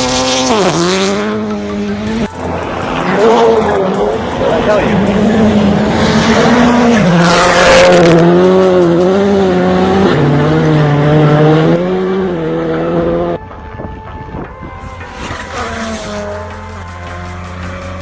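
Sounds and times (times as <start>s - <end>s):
car engine revving hard: 0.0s - 13.4s, 15.0s - 18.0s.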